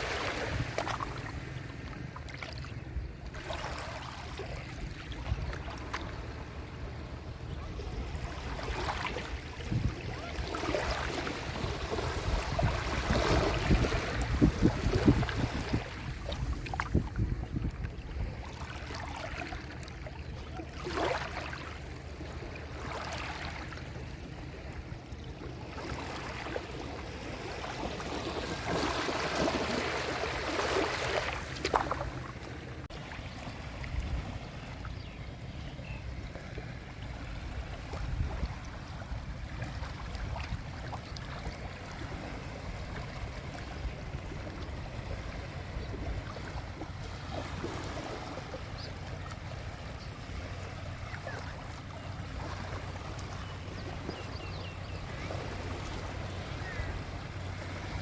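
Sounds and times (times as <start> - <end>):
small waves washing ashore: 0.0 - 58.0
wind rumble on microphone: 4.4 - 18.6, 31.6 - 58.0.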